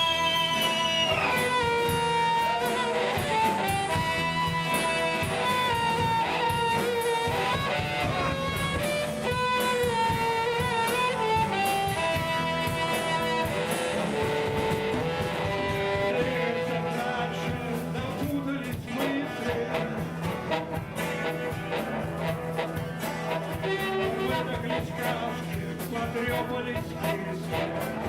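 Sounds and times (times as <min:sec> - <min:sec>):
drum kit: 0:00.0 - 0:28.0
guitar: 0:00.0 - 0:28.0
lead melody line: 0:00.0 - 0:28.0.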